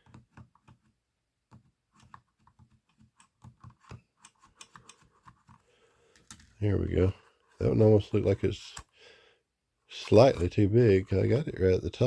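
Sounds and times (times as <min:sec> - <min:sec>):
small tool clicking on plastic: 0:00.0 - 0:06.5.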